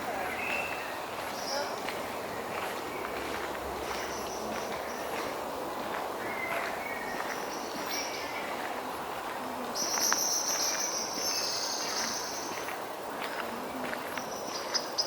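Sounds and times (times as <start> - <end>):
footsteps on a path: 0.0 - 15.0
bird chirps: 9.8 - 12.6
high-pitched insect trill: 9.8 - 12.7.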